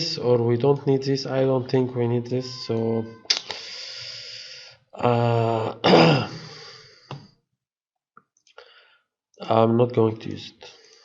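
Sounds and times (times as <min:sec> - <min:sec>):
man clearing his throat: 0:05.1 - 0:06.7.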